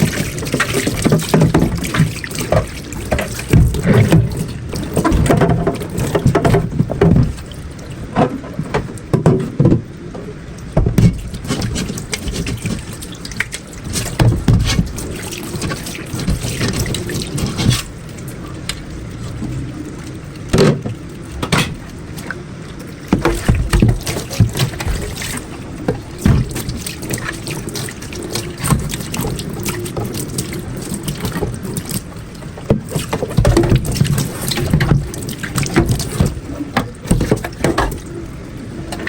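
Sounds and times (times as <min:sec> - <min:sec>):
items knocking and clattering: 0:00.0 - 0:07.5, 0:08.1 - 0:09.9, 0:10.8 - 0:13.0, 0:13.9 - 0:17.9, 0:23.1 - 0:27.3, 0:32.7 - 0:38.1
water splashing at a sink: 0:00.0 - 0:39.0.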